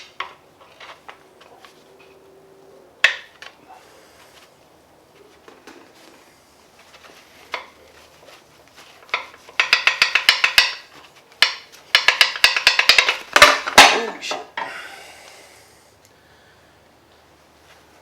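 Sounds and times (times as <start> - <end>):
ratchet clicking and clatter: 9.1 - 13.5.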